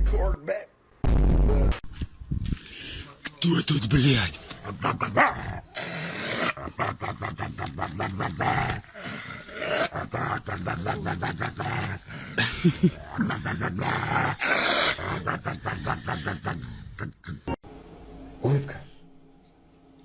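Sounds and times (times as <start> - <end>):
dog growling: 4.4 - 17.6.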